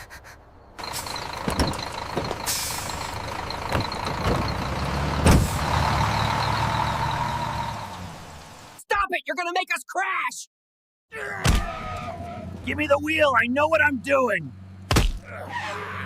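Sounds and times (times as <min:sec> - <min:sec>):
motor vehicle running: 0:00.7 - 0:08.8, 0:11.8 - 0:16.0.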